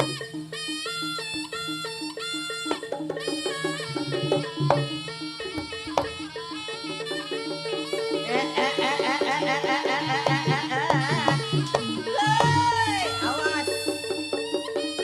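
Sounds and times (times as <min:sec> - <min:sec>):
gong-chime percussion: 0:00.0 - 0:15.0
wavering reed-wind melody: 0:00.0 - 0:15.0
drums: 0:10.1 - 0:15.0.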